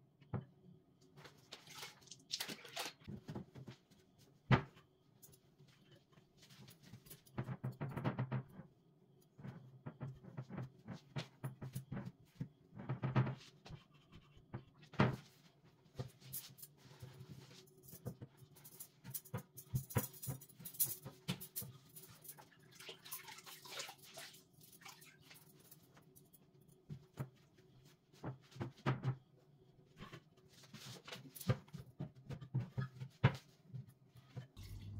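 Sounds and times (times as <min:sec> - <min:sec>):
steady low hum: 0:34.6 - 0:34.9.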